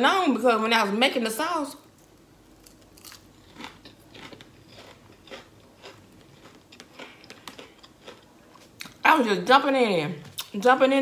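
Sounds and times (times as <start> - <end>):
chewing crunchy food: 2.5 - 9.0.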